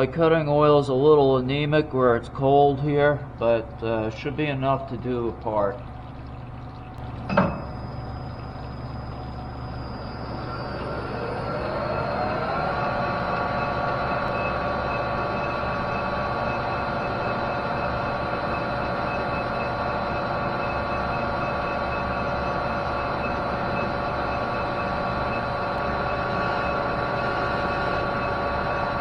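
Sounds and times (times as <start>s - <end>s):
metal lathe whining: 7.0s - 29.0s.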